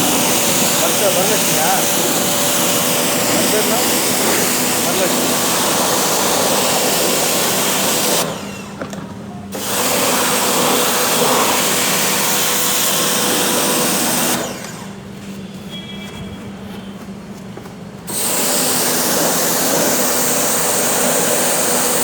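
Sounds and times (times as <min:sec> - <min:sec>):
high-pressure water jet spraying: 0:00.0 - 0:08.5, 0:09.6 - 0:14.7, 0:18.1 - 0:22.0
pump motor hum: 0:00.0 - 0:15.0, 0:18.1 - 0:22.0.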